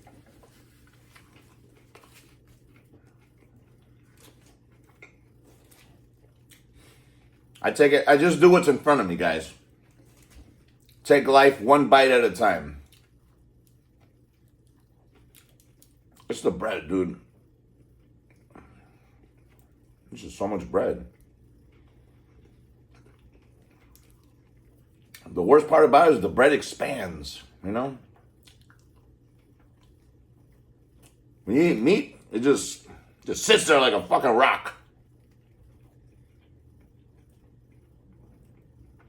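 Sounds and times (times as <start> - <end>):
person chewing a sandwich: 0.0 - 7.6, 9.6 - 11.1, 12.8 - 16.4, 17.2 - 25.4, 27.5 - 31.5, 34.4 - 39.0
low steady hum: 0.0 - 39.0
person speaking: 31.5 - 34.8.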